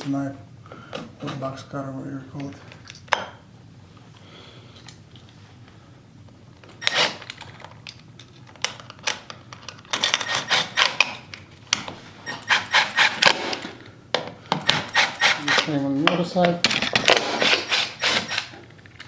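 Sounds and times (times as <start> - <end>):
knife blade scraping wood: 12.3 - 13.6.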